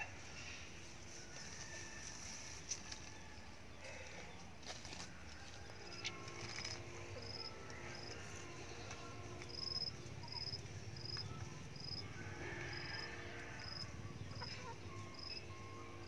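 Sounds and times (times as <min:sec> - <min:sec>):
insect chirping: 0:09.5 - 0:12.1, 0:12.7 - 0:15.6.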